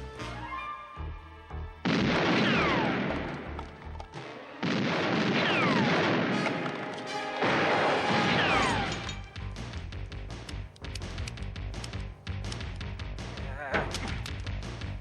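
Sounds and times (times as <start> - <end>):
loud gunshots with echo: 1.9 - 3.6, 4.6 - 9.0.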